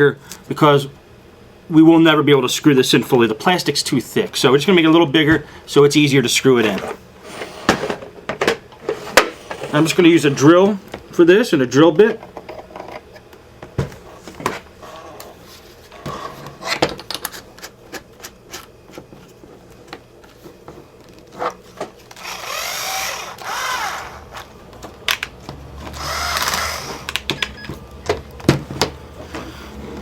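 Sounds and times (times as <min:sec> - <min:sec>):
cordless drill motor whirring: 0:22.1 - 0:24.5, 0:25.8 - 0:27.2.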